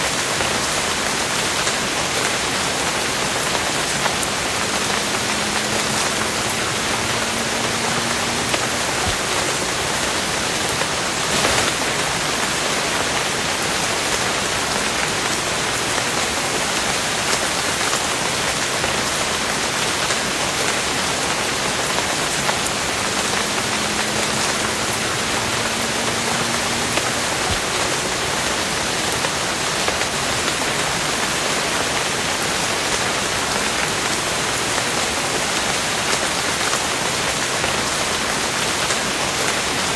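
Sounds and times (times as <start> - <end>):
rain pattering on a surface: 0.0 - 39.9
loud drop splat: 11.3 - 12.0.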